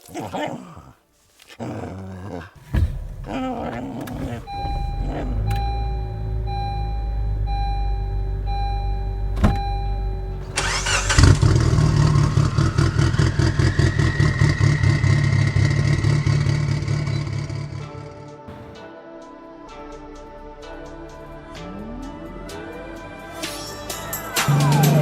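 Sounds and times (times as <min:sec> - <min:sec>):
car engine idling and revving: 0:02.6 - 0:18.3, 0:19.8 - 0:25.0
warning chime beeping: 0:04.1 - 0:11.3.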